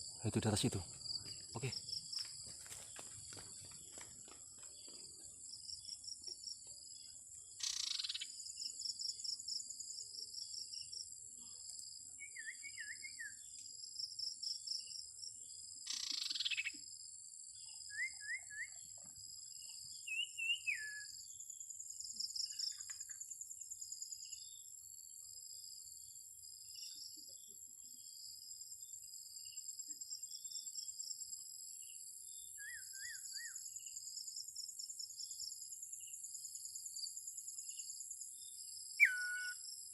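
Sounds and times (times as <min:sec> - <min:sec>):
pulsing insect chorus: 0:00.0 - 0:17.9, 0:19.0 - 0:39.9
small bird chirping: 0:04.5 - 0:11.1, 0:12.1 - 0:24.7, 0:38.9 - 0:39.9.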